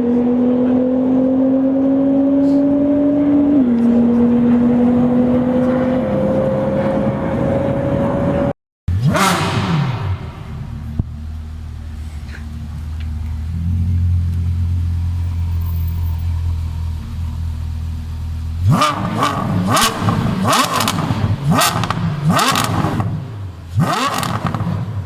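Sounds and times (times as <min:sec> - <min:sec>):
engine revving in throttle blips: 0:00.0 - 0:11.1, 0:18.4 - 0:25.0
car engine idling: 0:08.9 - 0:25.0.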